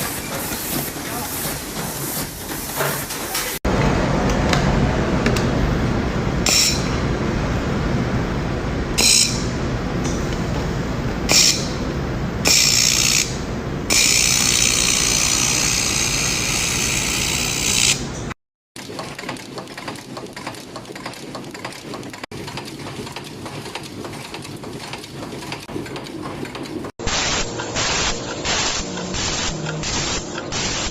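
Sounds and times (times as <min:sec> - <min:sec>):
machinery rumbling: 0:00.0 - 0:12.5
machine hissing: 0:27.1 - 0:30.9.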